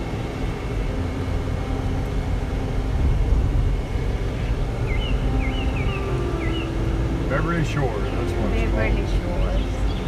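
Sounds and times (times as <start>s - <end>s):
car road and engine rumble: 0.0s - 10.0s
high chirp: 4.4s - 6.9s.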